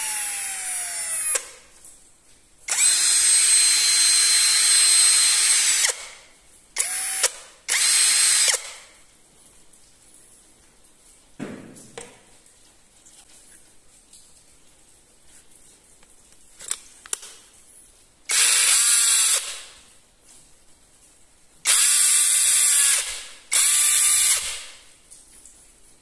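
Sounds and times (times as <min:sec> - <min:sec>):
cordless drill motor bursts: 0:00.0 - 0:01.6, 0:02.7 - 0:06.2, 0:06.8 - 0:08.8, 0:18.3 - 0:19.7, 0:21.7 - 0:24.7.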